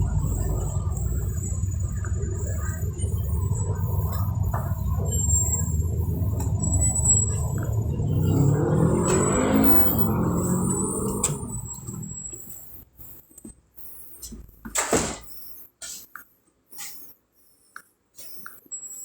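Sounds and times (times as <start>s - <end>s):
vehicle cabin low rumble: 0.0s - 12.4s
vehicle whirring: 0.0s - 12.8s.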